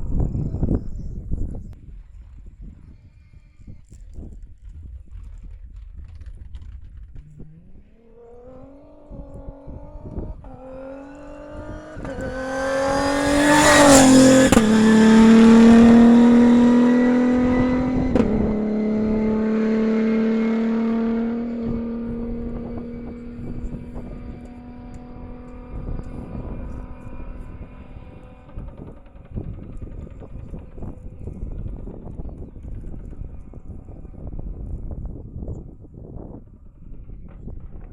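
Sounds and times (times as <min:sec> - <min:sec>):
rally car engine passing by: 0:06.0 - 0:35.5.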